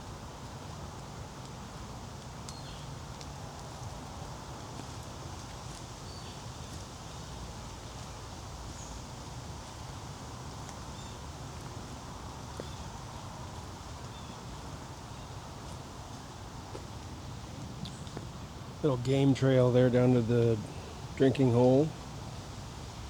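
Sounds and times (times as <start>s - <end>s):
footsteps clicks and rustles: 2.2s - 18.7s.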